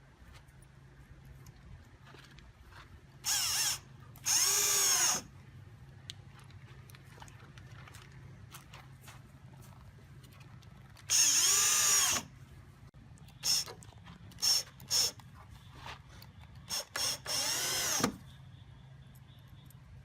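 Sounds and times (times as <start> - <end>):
power drill whirring: 3.2 - 5.3, 11.0 - 12.3, 13.4 - 15.2, 16.7 - 18.2.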